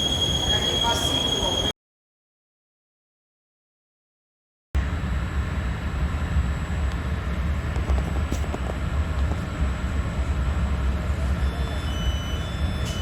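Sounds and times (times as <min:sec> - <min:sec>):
train rumble and hiss from inside: 0:00.0 - 0:01.7, 0:04.8 - 0:13.0.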